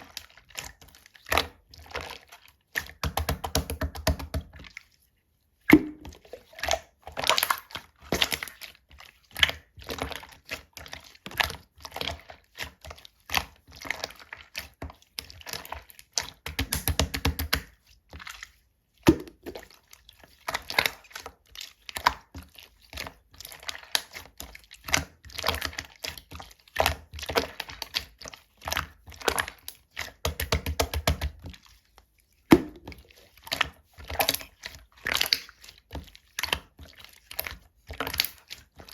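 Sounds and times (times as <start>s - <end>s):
slime squeezed with clicks and pops: 5.7s - 6.2s, 16.6s - 17.6s.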